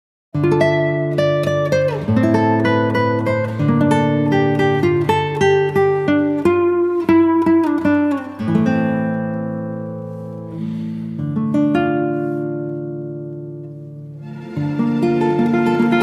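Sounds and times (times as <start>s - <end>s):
acoustic guitar music: 0.4s - 16.0s.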